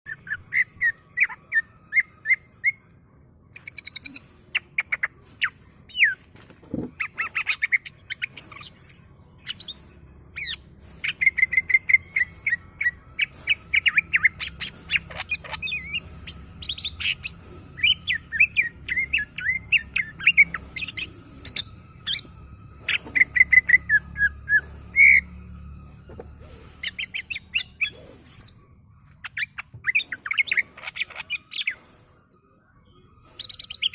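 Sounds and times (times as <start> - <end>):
bird twittering and whistling: 3.5 - 6.2, 7.0 - 25.4, 26.6 - 32.1, 33.2 - 33.9.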